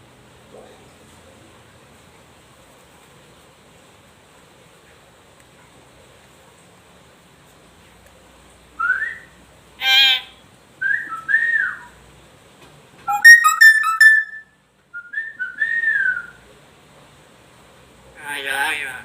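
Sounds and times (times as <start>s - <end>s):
myna whistling: 8.8s - 9.3s, 10.8s - 12.0s, 13.1s - 16.4s
harsh bird call: 13.1s - 14.4s.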